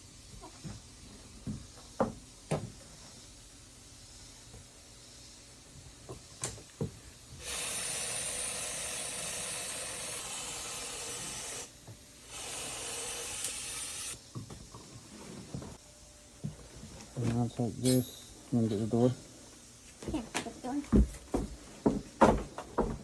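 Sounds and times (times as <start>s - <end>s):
spray paint can hissing: 7.4s - 14.2s.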